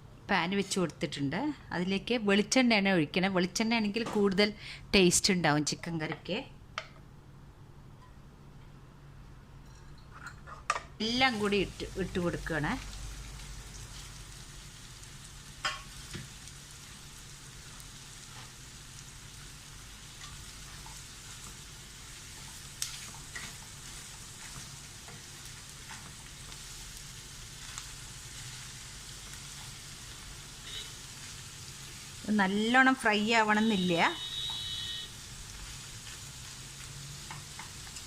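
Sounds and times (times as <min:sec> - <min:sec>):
vegetables sizzling in a pan: 0:11.0 - 0:38.0.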